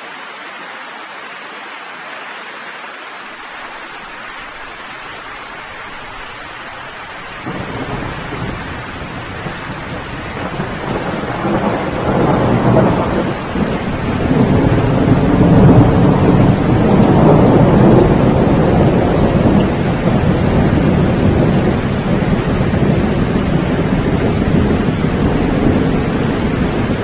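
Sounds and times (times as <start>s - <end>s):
steady rain: 0.0s - 27.0s
rolling thunder rumble: 7.3s - 27.0s.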